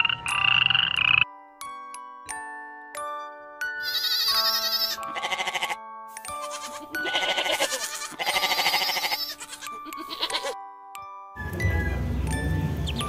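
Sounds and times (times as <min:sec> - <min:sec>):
background music with sustained notes: 0:00.0 - 0:13.0
young goat bleating: 0:03.8 - 0:10.6.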